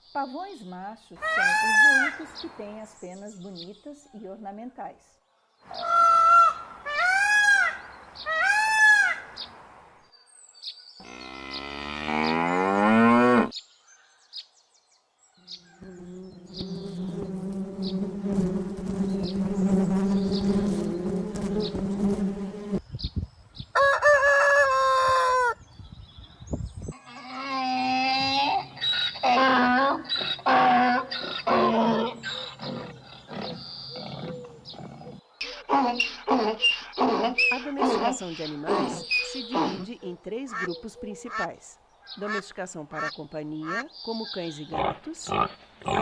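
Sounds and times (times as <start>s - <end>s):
pitched animal calls: 1.2s - 2.3s, 5.7s - 9.4s, 27.0s - 41.5s
peacock calling: 1.2s - 2.6s, 5.6s - 9.6s, 27.0s - 44.8s
insect-like buzzing: 15.8s - 22.8s.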